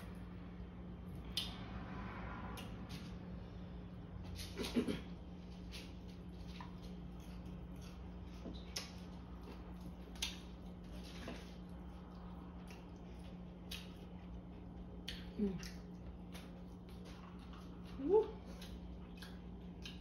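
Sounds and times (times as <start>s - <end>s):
low hum: 0.0s - 20.0s
chewing crispy fried chicken: 4.4s - 20.0s.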